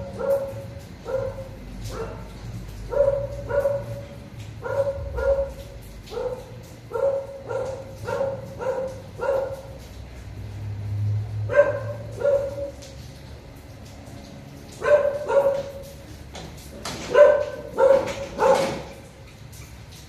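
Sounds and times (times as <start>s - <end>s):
dog barking: 0.0s - 9.8s, 11.5s - 12.8s, 14.7s - 15.9s, 17.0s - 19.0s.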